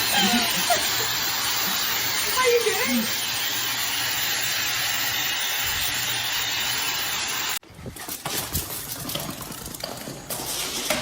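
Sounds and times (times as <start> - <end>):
steady hissing rush: 0.0 - 7.6.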